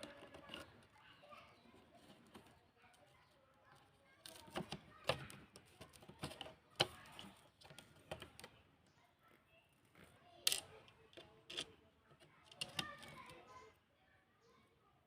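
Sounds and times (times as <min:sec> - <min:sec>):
small hard parts clicking and knocking: 0:00.0 - 0:01.0, 0:03.7 - 0:08.7, 0:09.9 - 0:13.7.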